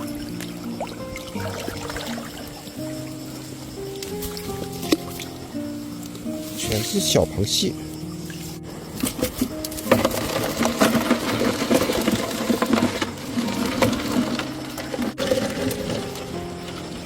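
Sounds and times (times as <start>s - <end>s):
background music: 0.0s - 17.0s
crabs rattling and clicking in trap: 9.0s - 17.0s.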